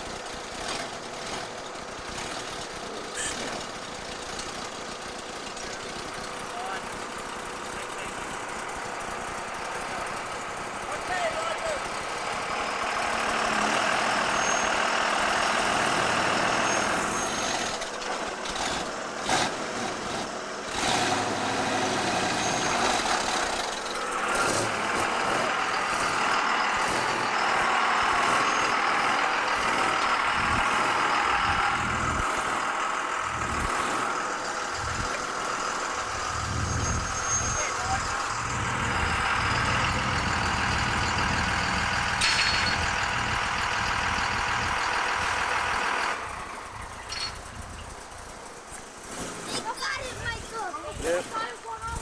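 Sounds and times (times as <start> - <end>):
truck engine running: 0.0 - 52.0.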